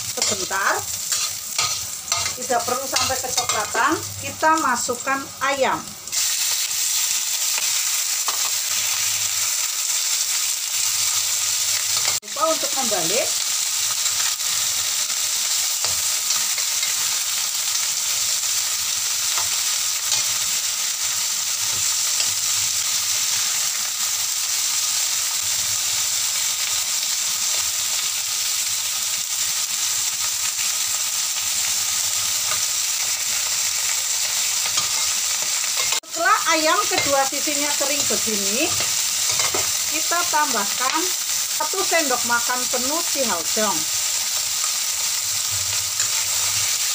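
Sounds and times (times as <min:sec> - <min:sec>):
chicken sizzling in oil: 0:00.0 - 0:46.9
metal spatula scraping wok: 0:00.1 - 0:03.8, 0:34.6 - 0:36.1, 0:36.8 - 0:39.9.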